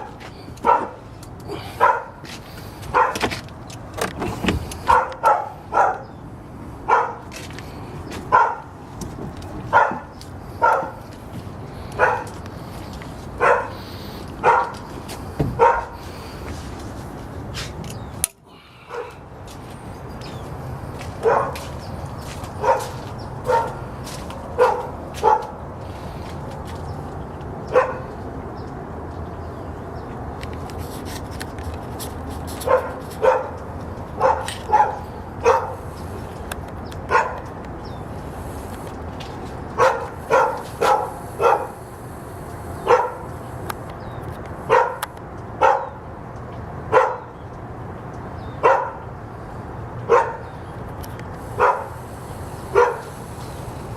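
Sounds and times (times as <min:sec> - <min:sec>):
dog barking: 0:00.6 - 0:01.0, 0:01.8 - 0:02.2, 0:02.9 - 0:03.2, 0:04.8 - 0:06.1, 0:06.9 - 0:07.3, 0:08.3 - 0:08.7, 0:09.7 - 0:11.0, 0:12.0 - 0:12.3, 0:13.4 - 0:13.8, 0:14.4 - 0:14.8, 0:15.6 - 0:16.0, 0:18.9 - 0:19.2, 0:21.2 - 0:21.7, 0:22.6 - 0:23.8, 0:24.6 - 0:25.6, 0:27.7 - 0:28.1, 0:32.6 - 0:33.6, 0:34.2 - 0:35.8, 0:37.1 - 0:37.5, 0:39.8 - 0:41.8, 0:42.8 - 0:43.3, 0:44.7 - 0:45.0, 0:45.6 - 0:46.0, 0:46.9 - 0:47.3, 0:48.6 - 0:49.1, 0:50.1 - 0:50.5, 0:51.6 - 0:52.0, 0:52.7 - 0:53.1.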